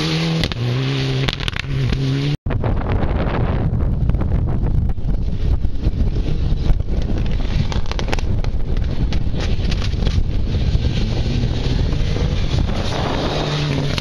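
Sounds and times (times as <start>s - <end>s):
wind buffeting the microphone: 2.5s - 14.0s
car engine running hard: 9.0s - 14.0s.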